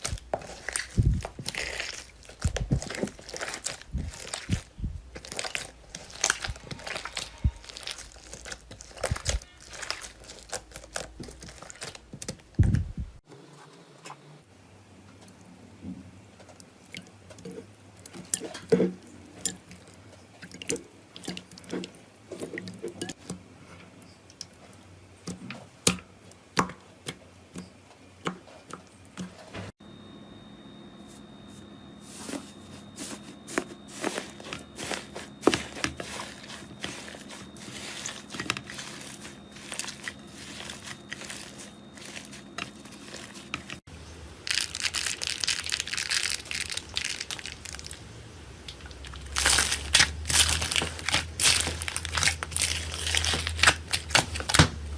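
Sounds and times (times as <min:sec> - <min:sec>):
slime popping and crackling: 0:00.0 - 0:12.6, 0:44.5 - 0:48.0, 0:48.7 - 0:54.7
crinkly crunching: 0:00.0 - 0:12.8, 0:32.2 - 0:48.0, 0:48.7 - 0:54.9
faint steady hum: 0:00.0 - 0:54.9.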